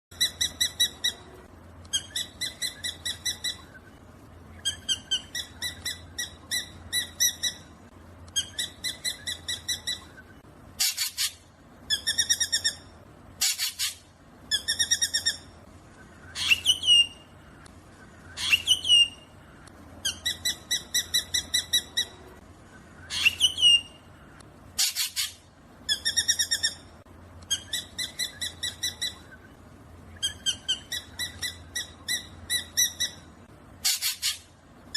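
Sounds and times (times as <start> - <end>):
harsh rasping bird calls: 8.3 - 34.6
bird chattering calls: 10.8 - 12.8, 13.4 - 15.4, 24.8 - 26.8, 33.8 - 34.5.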